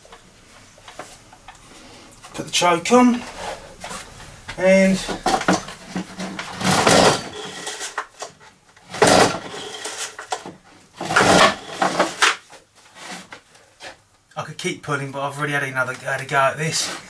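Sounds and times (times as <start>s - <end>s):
leaf blower engine cranking: 5.0s - 8.3s, 8.9s - 12.4s.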